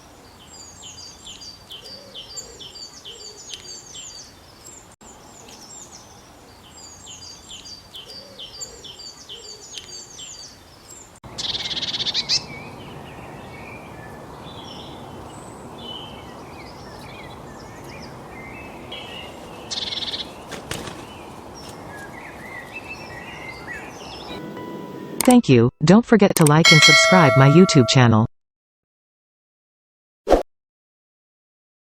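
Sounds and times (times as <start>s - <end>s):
small birds calling: 0.0s - 24.4s.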